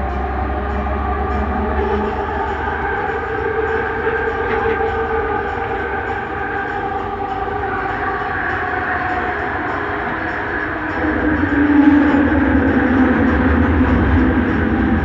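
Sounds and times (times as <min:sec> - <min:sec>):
train running rumble: 0:00.0 - 0:15.0.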